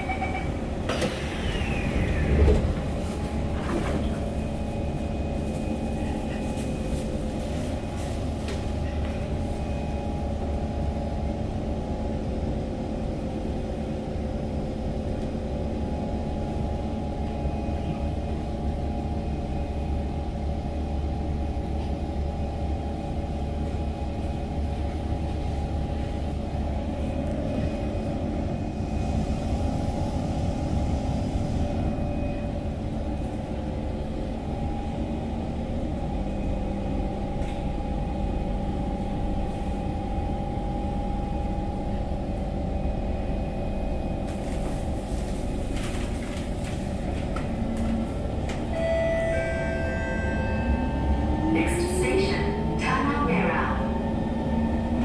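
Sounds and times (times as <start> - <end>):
metro train car humming: 0.0 - 55.0.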